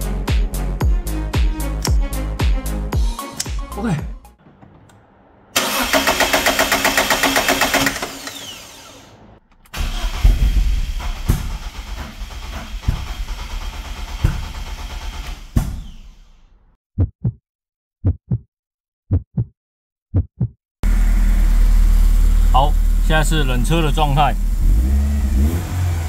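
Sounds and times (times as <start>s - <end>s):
cold engine running: 4.4s - 16.4s, 20.8s - 26.0s
engine cranking on starter: 4.4s - 16.4s
short low thumps: 17.0s - 17.4s, 20.1s - 20.6s.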